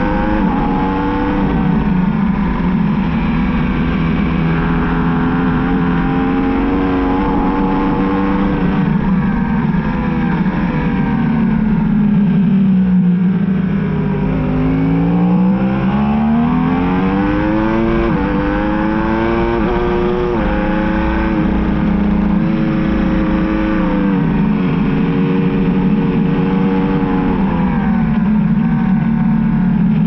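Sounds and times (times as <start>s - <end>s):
sport bike engine at racing speed: 0.0s - 30.0s.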